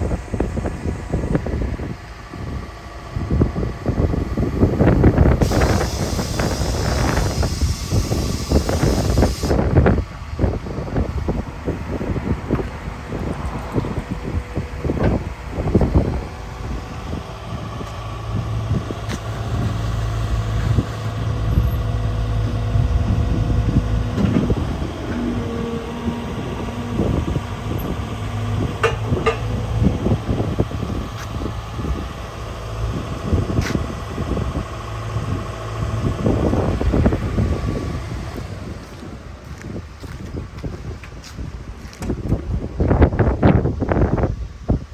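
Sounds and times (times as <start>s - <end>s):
thin steady whine: 0.0s - 39.4s
diesel engine running: 0.0s - 44.9s.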